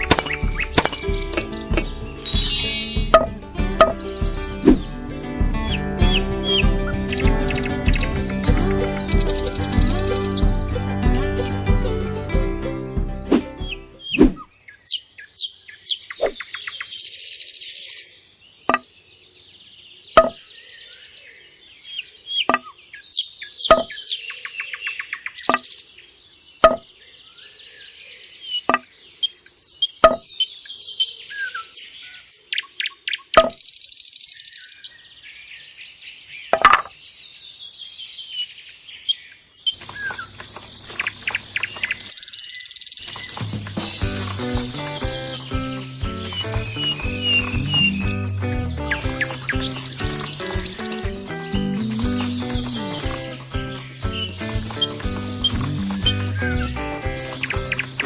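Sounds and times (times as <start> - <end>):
sharp knocks: 0.0 - 10.6
birds chirping and trilling: 0.0 - 58.0.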